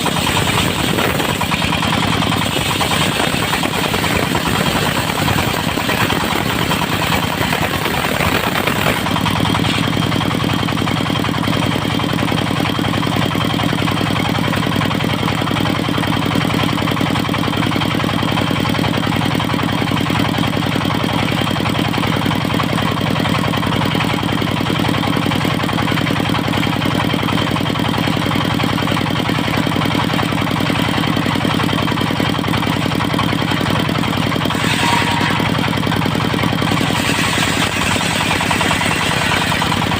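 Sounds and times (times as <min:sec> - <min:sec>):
hissing sound: 0:00.0 - 0:09.9
sawmill engine running: 0:00.0 - 0:39.9.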